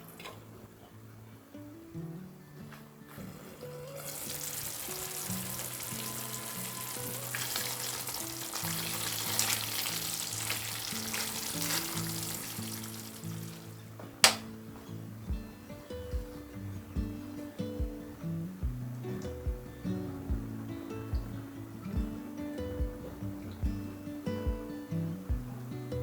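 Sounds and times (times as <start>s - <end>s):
soft background music: 0.0s - 26.0s
food sizzling in hot oil: 3.3s - 14.4s.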